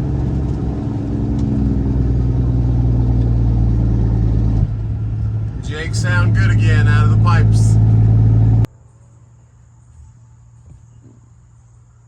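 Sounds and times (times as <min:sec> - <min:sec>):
diesel engine brake: 0:00.0 - 0:08.7.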